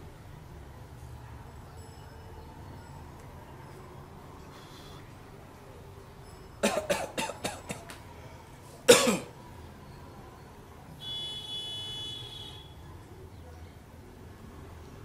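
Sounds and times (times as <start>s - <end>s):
man coughing: 6.6s - 7.9s, 8.9s - 9.3s.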